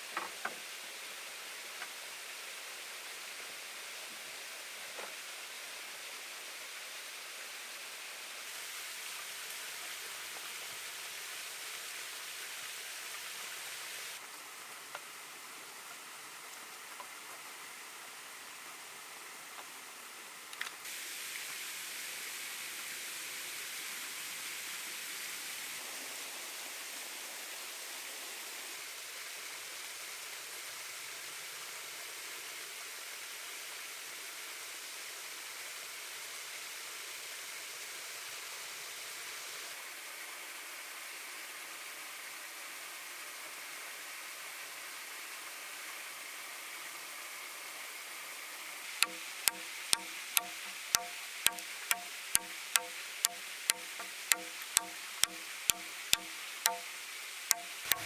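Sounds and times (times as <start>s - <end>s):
faint clicks: 49.0s - 58.0s
steady hissing noise: 49.0s - 58.0s.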